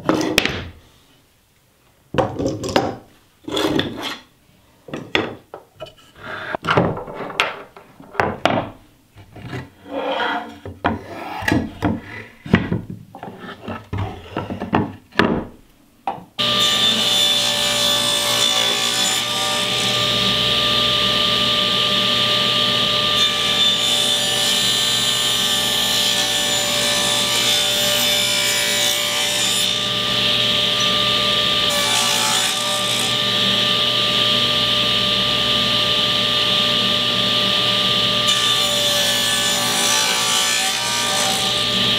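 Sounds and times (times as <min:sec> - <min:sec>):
table saw whining: 0:16.4 - 0:41.9.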